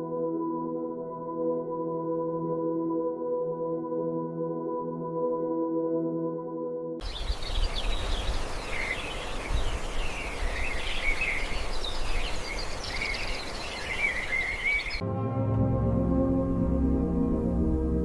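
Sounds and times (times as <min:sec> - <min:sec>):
small birds chirping: 0:07.0 - 0:15.0.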